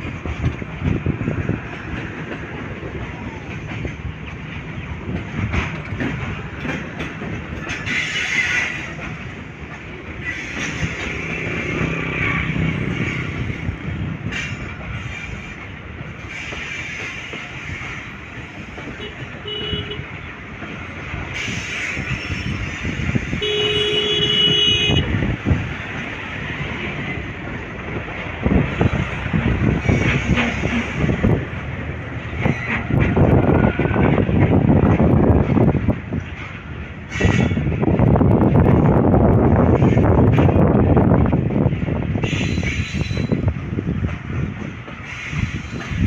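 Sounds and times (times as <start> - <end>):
train rumbling on tracks: 0.0 - 46.0
train wheels clattering: 0.0 - 46.0
train horn: 18.9 - 20.2, 23.3 - 25.2.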